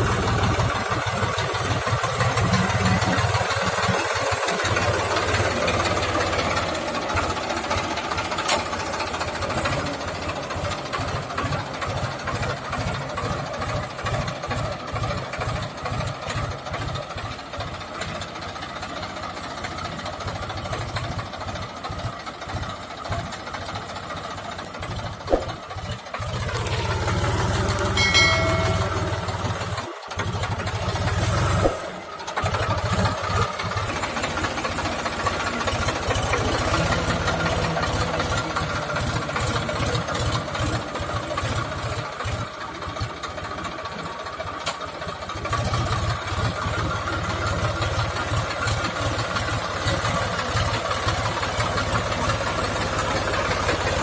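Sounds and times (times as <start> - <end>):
tractor diesel engine running: 0.0 - 54.0
short pitched tone: 27.9 - 29.9.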